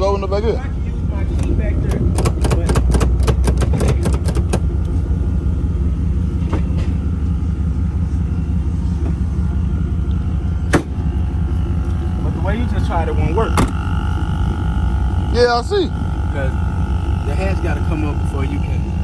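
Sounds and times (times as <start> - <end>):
steady low rumble: 0.0 - 19.0
tailgate latch clicking: 1.4 - 4.6.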